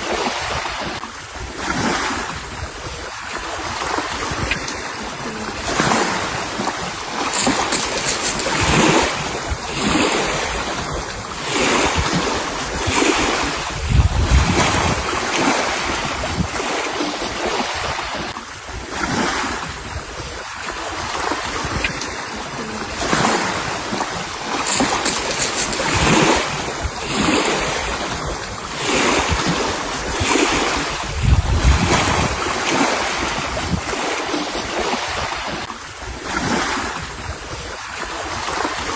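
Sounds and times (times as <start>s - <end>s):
sea waves washing ashore: 0.0s - 38.9s
wind: 0.0s - 38.9s.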